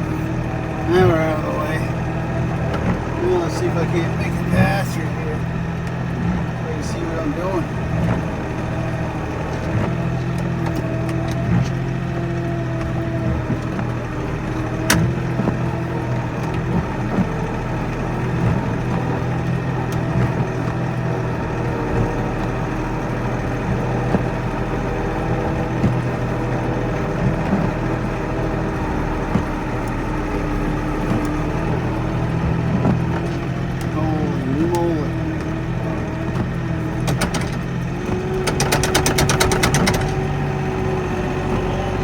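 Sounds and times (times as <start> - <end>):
tractor diesel engine running: 0.0 - 42.0
sharp clicks and knocks: 35.1 - 40.9.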